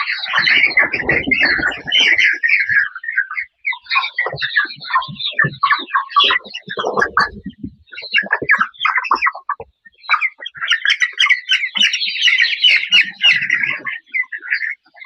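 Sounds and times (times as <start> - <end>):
chickens calling and chirping: 0.0 - 15.0.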